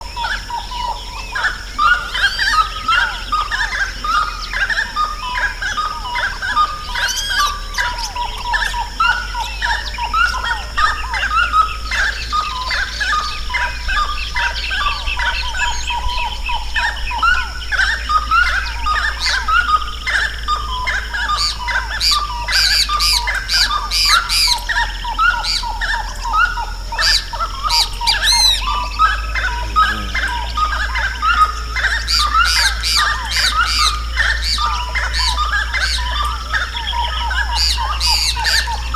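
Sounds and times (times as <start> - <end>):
chorus of birds singing: 0.0 - 38.9
low hum: 24.5 - 38.9.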